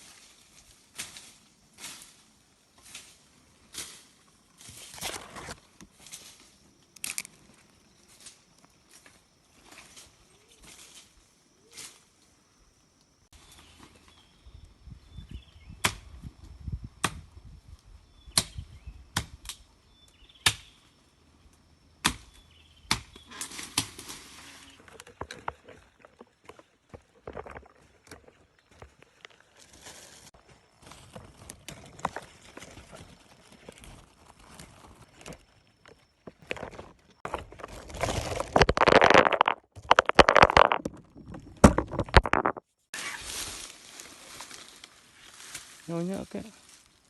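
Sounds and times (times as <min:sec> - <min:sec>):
rustling: 0:36.3 - 0:47.0.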